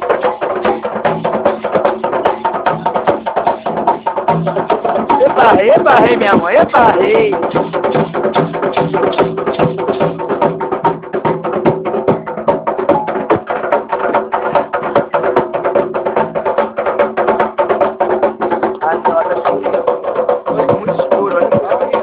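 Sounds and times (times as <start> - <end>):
fast dense drumming: 0.0 - 22.0
voices: 5.1 - 7.5, 18.7 - 22.0.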